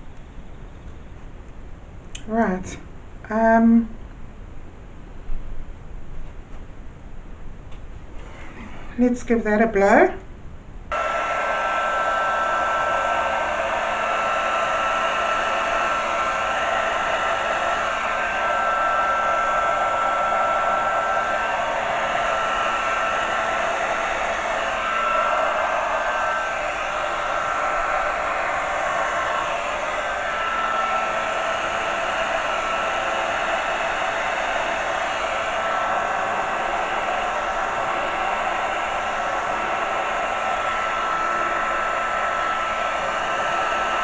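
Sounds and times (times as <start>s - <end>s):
faint high whine: 0.0s - 4.0s
hair dryer blowing air: 10.9s - 44.0s.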